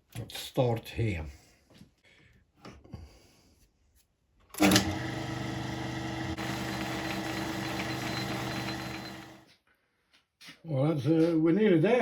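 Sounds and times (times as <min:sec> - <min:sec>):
metal lathe humming: 0:04.6 - 0:09.4.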